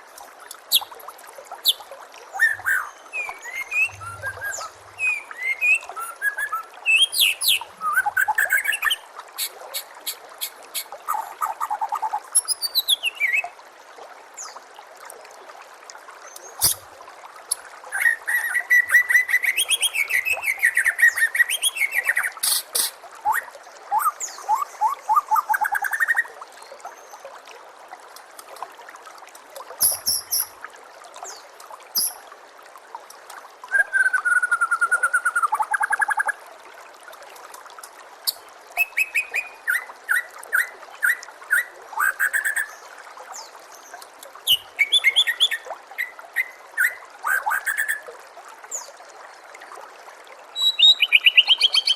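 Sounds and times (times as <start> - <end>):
running water trickling: 0.0 - 51.9
songbird whistling and trilling: 2.4 - 9.0, 18.0 - 23.4, 29.8 - 30.5, 32.0 - 32.2, 33.7 - 36.3, 38.8 - 42.7, 44.5 - 48.0, 50.6 - 51.9.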